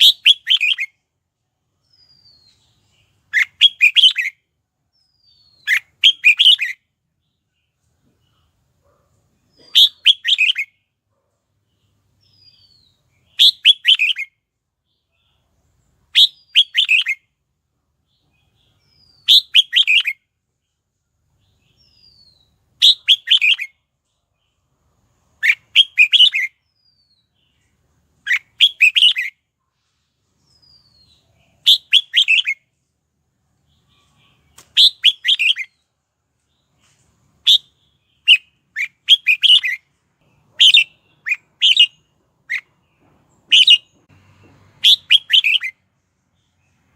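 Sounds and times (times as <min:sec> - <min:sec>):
bird singing short phrases: 0:00.0 - 0:01.0, 0:01.8 - 0:08.5, 0:09.4 - 0:10.8, 0:11.6 - 0:17.3, 0:18.0 - 0:20.8, 0:21.4 - 0:24.8, 0:25.4 - 0:29.4, 0:30.4 - 0:32.6, 0:33.6 - 0:35.9, 0:36.5 - 0:42.8, 0:43.4 - 0:44.0, 0:44.8 - 0:45.7.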